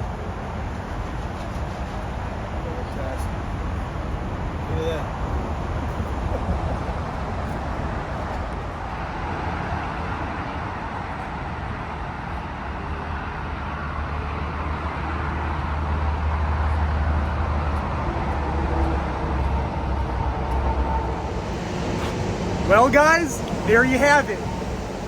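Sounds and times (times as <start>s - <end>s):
diesel engine rumbling: 15.6s - 25.0s
faint steady whine: 17.1s - 25.0s.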